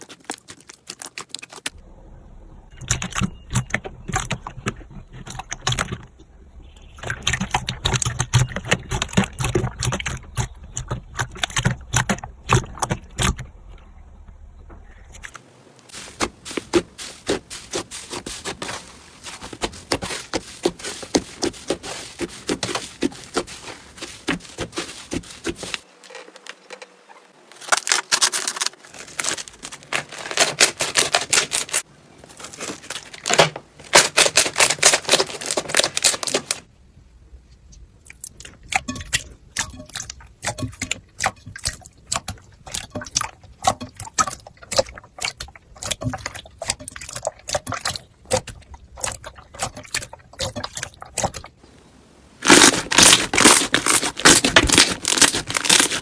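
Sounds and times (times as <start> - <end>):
slime crackling and popping: 52.4 - 56.0.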